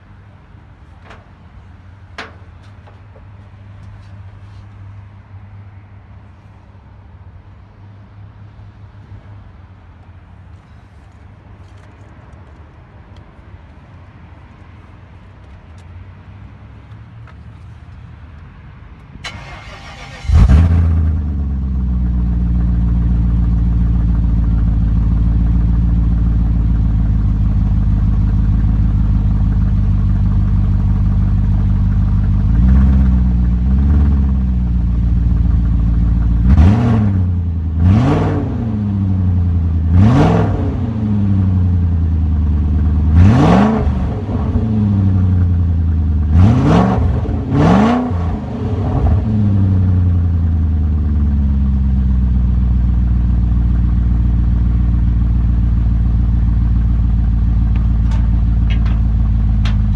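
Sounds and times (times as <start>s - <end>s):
car engine idling: 0.0s - 6.5s, 19.2s - 38.0s, 44.1s - 47.6s, 48.2s - 59.9s
engine revving: 19.3s - 21.3s, 36.4s - 39.0s, 39.9s - 41.5s, 43.1s - 45.4s, 46.3s - 49.8s.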